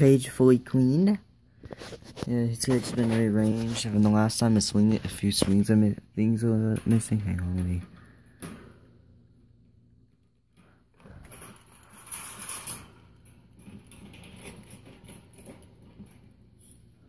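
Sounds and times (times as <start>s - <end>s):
objects handled rustling: 1.6s - 5.7s.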